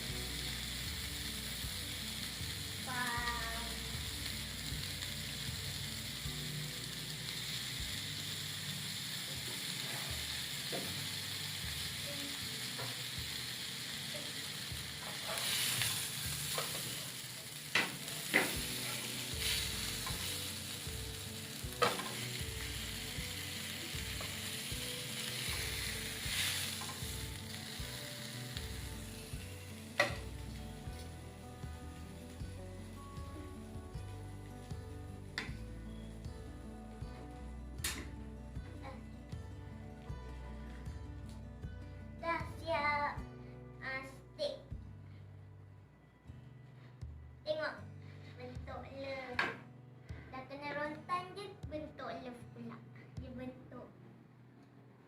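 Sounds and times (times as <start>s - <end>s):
steak sizzling in a pan: 0.0s - 41.4s.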